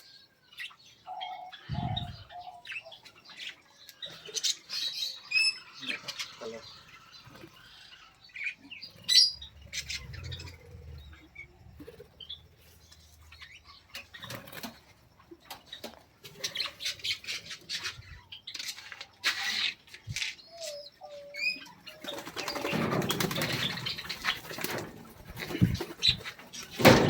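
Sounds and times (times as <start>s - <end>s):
small birds chirping: 0.0s - 27.0s
wings fluttering: 21.9s - 27.0s.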